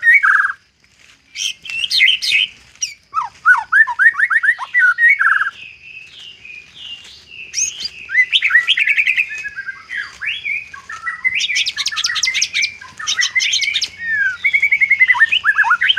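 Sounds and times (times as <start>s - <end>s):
bird singing whistled notes: 0.0s - 0.6s, 1.3s - 15.9s
bird rattling trills: 1.4s - 15.9s.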